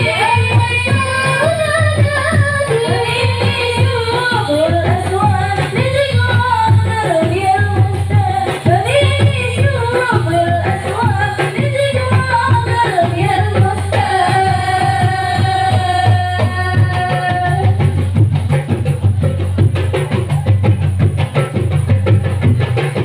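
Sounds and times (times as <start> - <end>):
low drum beat: 0.0 - 23.0.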